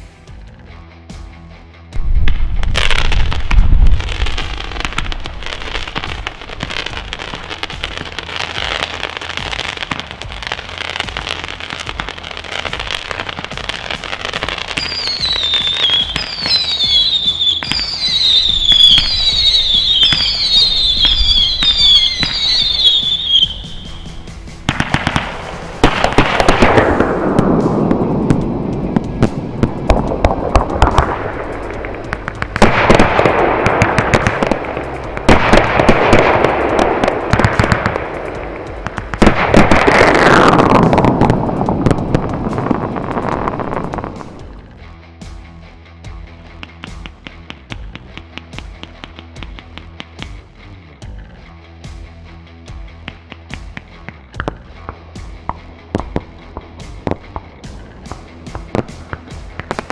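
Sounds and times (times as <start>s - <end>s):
firework crackling: 2.0s - 44.8s, 53.1s - 59.9s
firework launch shots: 2.1s - 44.6s
falling firework whistles: 14.6s - 28.4s.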